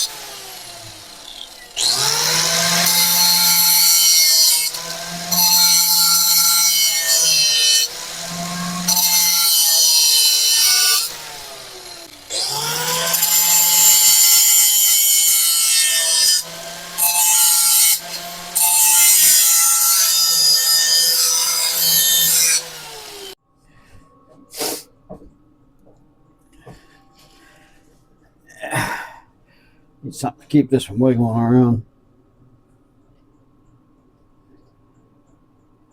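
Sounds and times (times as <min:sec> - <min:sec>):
power grinder on metal: 0:00.0 - 0:23.4.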